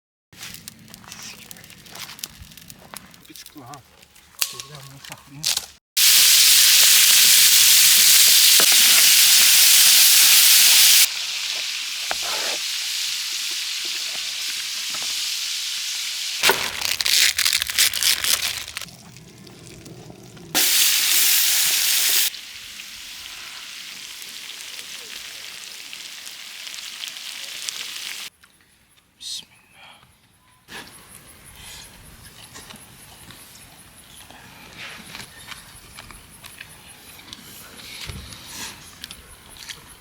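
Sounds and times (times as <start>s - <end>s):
crackling and clicks: 0.4s - 5.7s, 16.4s - 20.5s
food sizzling in hot fat: 6.0s - 19.0s, 20.5s - 28.3s.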